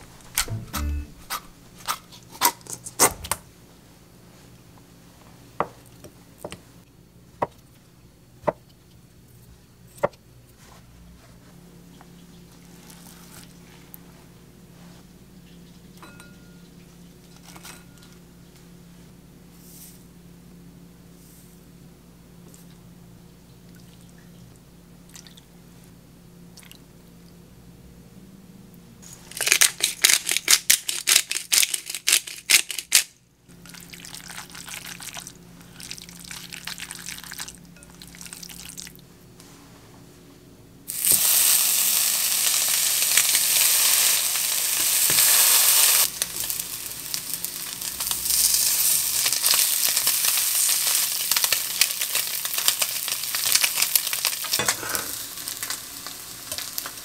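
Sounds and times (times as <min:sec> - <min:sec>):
meat sizzling in a pan: 0:40.9 - 0:57.0.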